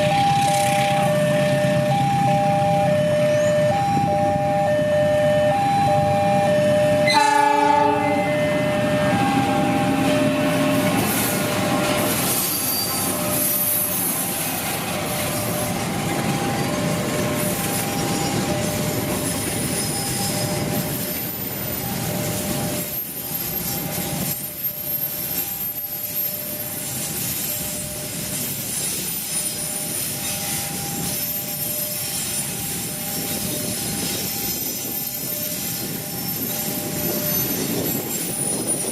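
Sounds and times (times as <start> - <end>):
train cars passing: 0.0 - 38.9
train horn blast: 6.9 - 10.7
high wheel squeals: 7.0 - 38.9.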